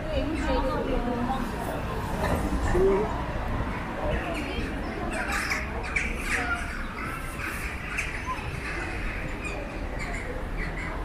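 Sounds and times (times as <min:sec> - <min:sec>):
street traffic rumble: 0:00.0 - 0:11.0
birds chirping and calling: 0:03.8 - 0:11.0.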